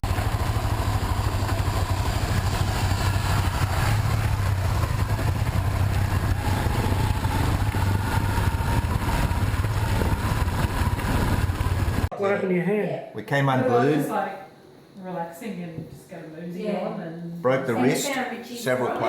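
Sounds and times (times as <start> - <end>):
motorcycle engine running: 0.0 - 12.1.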